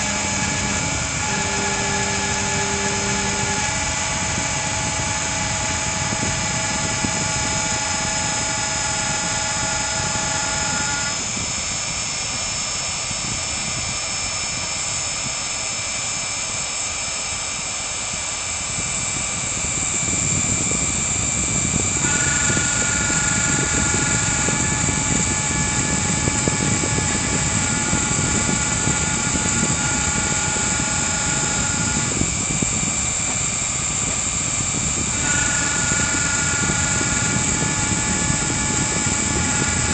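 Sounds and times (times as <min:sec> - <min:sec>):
low cutting rumble: 0:00.0 - 0:11.4
spindle motor hissing: 0:00.0 - 0:39.9
stepper motors whining: 0:00.0 - 0:39.9.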